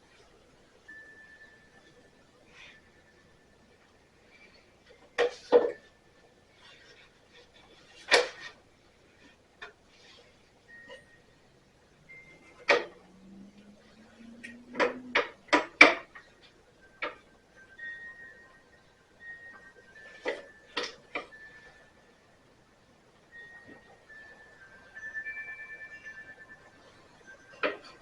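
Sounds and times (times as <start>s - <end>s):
faint low hum rising: 10.6s - 20.0s.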